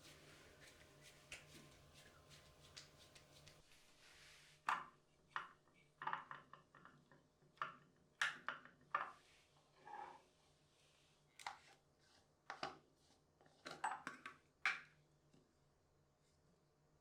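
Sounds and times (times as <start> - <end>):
soft rustling: 0.0 - 4.6.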